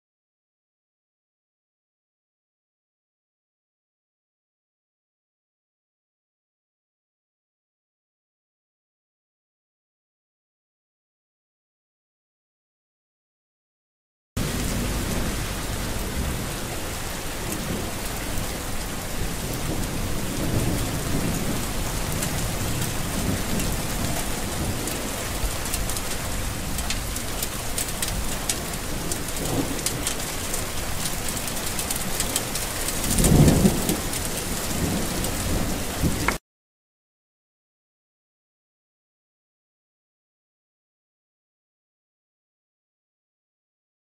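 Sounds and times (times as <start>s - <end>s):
heavy rain falling: 14.4s - 36.4s
rain drop ticks: 14.4s - 36.4s
thunder rumbling: 14.4s - 36.4s.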